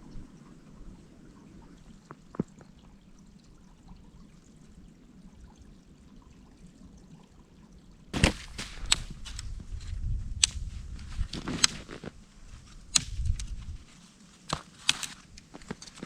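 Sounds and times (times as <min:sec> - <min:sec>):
brook trickling: 0:00.0 - 0:16.0
sharp clicks: 0:08.2 - 0:09.5
loud crunching: 0:08.2 - 0:09.6.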